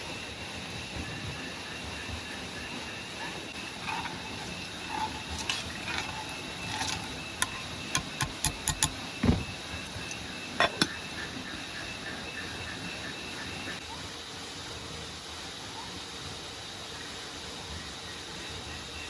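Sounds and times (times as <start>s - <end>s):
steady background hiss: 0.0s - 19.0s
sharp clicks and knocks: 6.9s - 9.6s.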